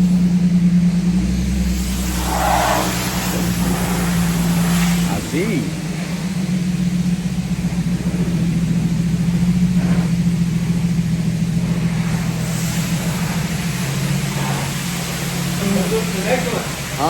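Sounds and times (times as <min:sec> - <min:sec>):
car engine droning: 0:00.0 - 0:17.0.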